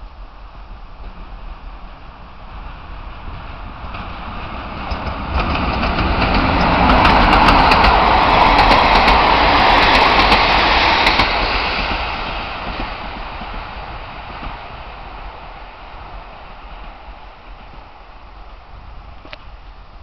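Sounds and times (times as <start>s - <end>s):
train rumbling past: 0.0s - 20.0s
wheels clicking on rails: 2.6s - 14.7s.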